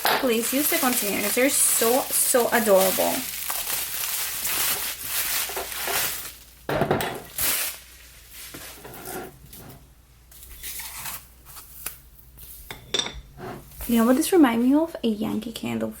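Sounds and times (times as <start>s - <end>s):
packing paper rustling: 0.0s - 6.6s, 7.2s - 8.8s.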